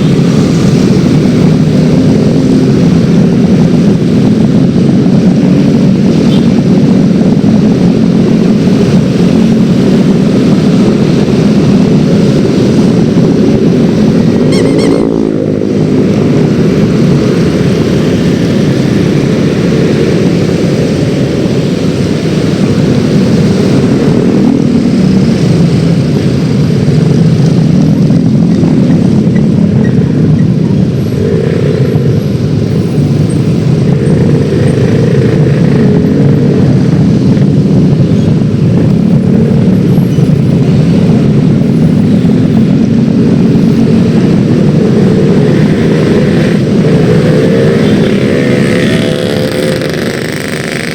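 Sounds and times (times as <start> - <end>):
wind rush on microphone: 0.0 - 50.9
brief high tone: 14.5 - 15.3.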